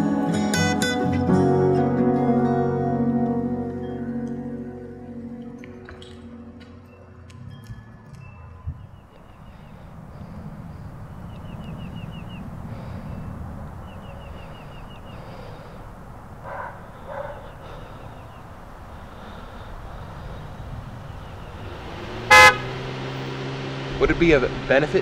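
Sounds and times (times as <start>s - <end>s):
bird chirping: 8.2s - 22.8s
dog barking: 16.4s - 18.1s.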